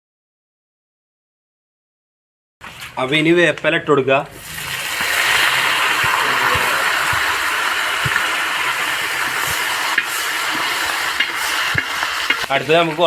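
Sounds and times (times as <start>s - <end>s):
oil sizzling in frying pan: 4.3s - 13.0s.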